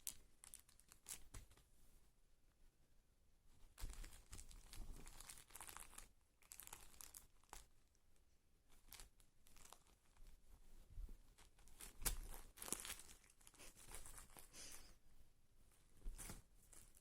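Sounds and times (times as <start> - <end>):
tissue paper crinkling and tearing: 3.8 - 7.7, 8.8 - 10.1, 11.4 - 14.8.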